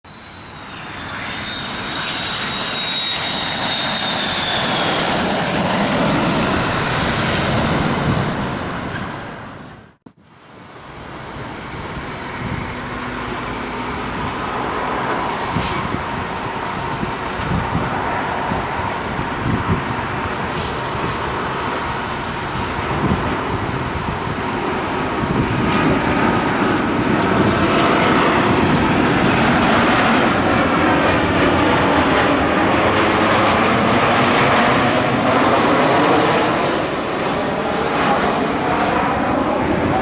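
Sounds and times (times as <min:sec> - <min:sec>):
jet engines passing: 0:00.1 - 0:40.0
road traffic: 0:10.1 - 0:39.6.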